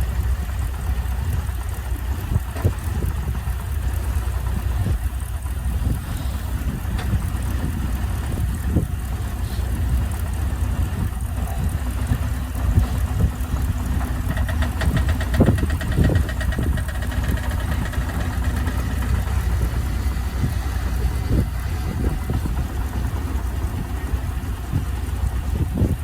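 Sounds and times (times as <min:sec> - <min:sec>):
heavy machine engine rumble: 0:00.0 - 0:26.0
rapid ticks: 0:09.8 - 0:20.3.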